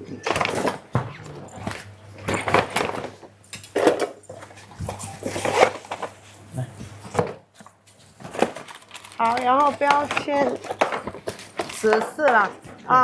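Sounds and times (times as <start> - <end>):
dishes and utensils clattering: 9.7 - 13.0.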